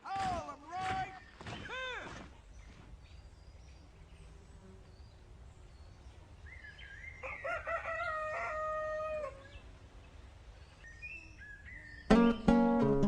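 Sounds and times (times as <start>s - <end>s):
rooster crowing: 7.2s - 9.5s.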